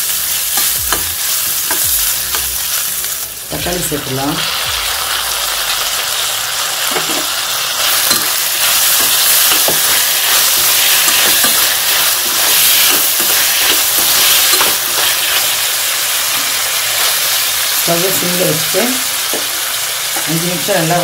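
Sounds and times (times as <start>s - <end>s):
vegetables sizzling in hot oil: 0.0s - 21.0s
spatula stirring: 6.9s - 15.6s.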